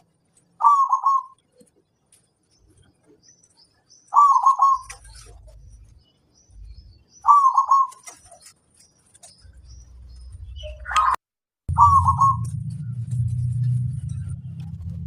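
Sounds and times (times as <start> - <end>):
small birds chirping: 0.0 - 15.0
dove cooing: 0.6 - 1.7, 4.1 - 5.5, 7.2 - 8.3, 11.7 - 12.5.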